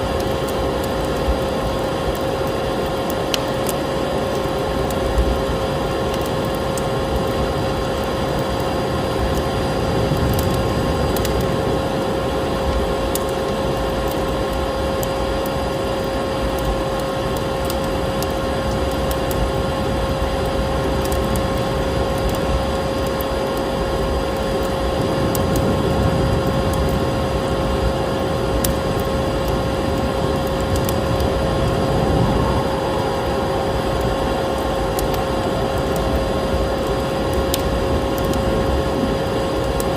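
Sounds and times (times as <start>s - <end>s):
wood fire crackling and popping: 0.0s - 39.9s
vacuum cleaner running: 27.6s - 39.8s.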